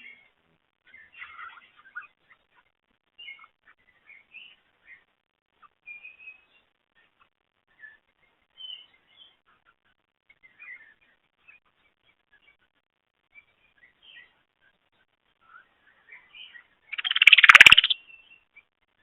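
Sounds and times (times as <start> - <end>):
wild birds chirping: 0.0 - 18.7
whistled bird notes: 16.4 - 18.4.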